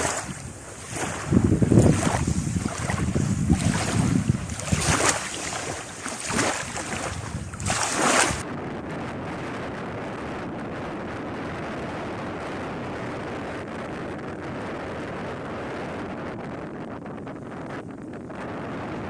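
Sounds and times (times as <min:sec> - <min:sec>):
sea rushing: 0:00.0 - 0:08.5
wind on microphone: 0:00.0 - 0:19.0.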